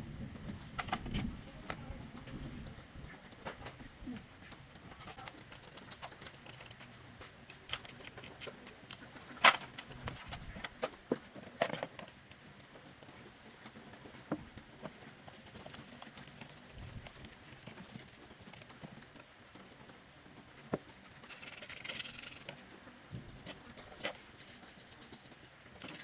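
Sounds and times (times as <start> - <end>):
faint steady background noise: 0.0 - 26.0
clicks and knocks of hand work: 3.3 - 12.2.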